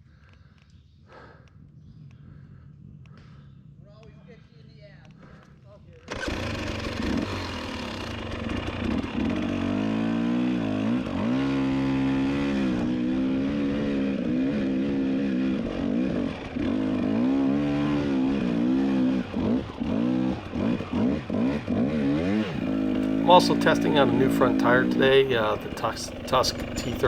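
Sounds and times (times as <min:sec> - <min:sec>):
dirt bike engine revving: 0:06.1 - 0:27.0.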